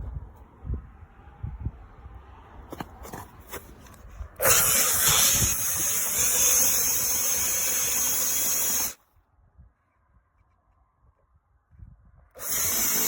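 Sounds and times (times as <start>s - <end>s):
hammer drill running: 12.4s - 13.0s.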